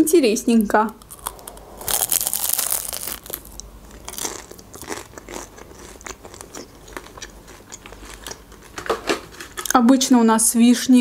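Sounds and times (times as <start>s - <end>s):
crunch of pastry crust: 0.9s - 9.8s
close chewing: 1.0s - 8.8s.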